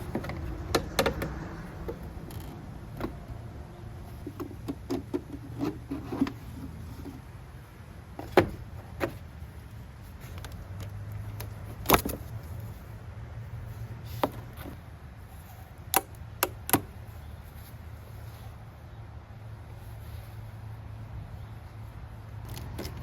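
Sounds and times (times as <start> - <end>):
steady low hum: 0.0 - 4.6.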